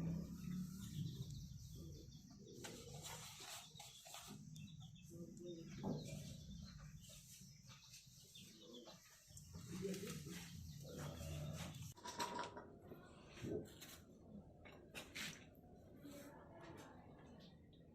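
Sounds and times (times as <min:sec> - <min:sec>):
bird calls: 0:00.4 - 0:12.0.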